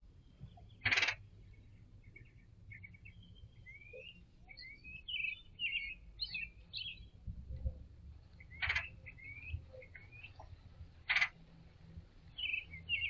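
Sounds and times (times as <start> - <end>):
low background rumble: 0.0 - 13.0
birds chirping and whistling: 0.2 - 7.8, 8.4 - 10.5, 12.3 - 13.0.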